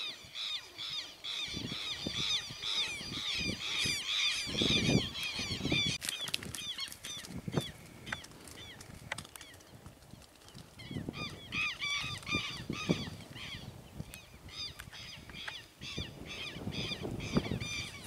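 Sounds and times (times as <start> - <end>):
bird harsh calls: 0.0 - 8.8.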